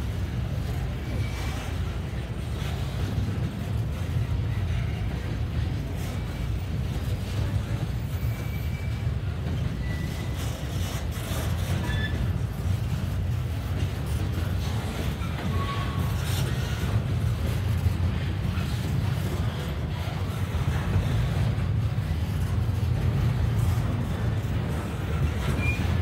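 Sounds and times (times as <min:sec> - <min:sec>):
train wheels rumbling on rails: 0:00.0 - 0:26.0
faint high wheel squeals: 0:00.7 - 0:02.0, 0:04.1 - 0:13.1, 0:14.1 - 0:17.0, 0:25.1 - 0:26.0.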